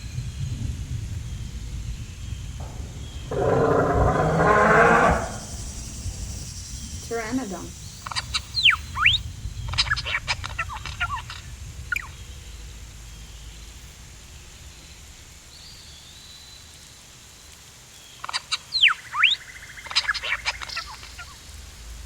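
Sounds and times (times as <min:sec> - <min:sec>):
pteranodon cry: 0:03.3 - 0:05.5.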